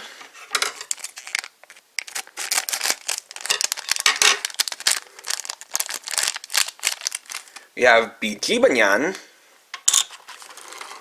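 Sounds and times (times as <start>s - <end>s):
wrapper tearing and crinkling: 0.8s - 7.7s.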